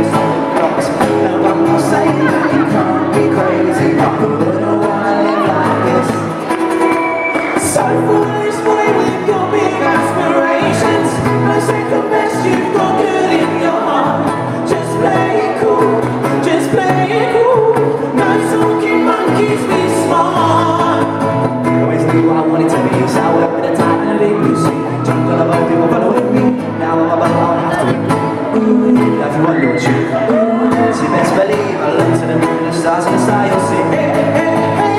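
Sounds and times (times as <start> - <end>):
live band playing pop song: 0.0 - 34.9
person singing: 0.0 - 34.9.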